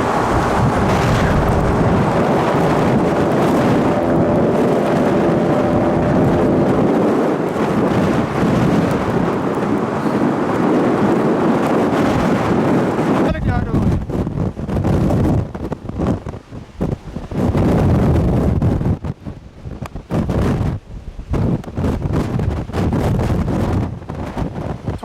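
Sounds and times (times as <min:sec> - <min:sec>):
wind roaring: 0:00.0 - 0:25.0.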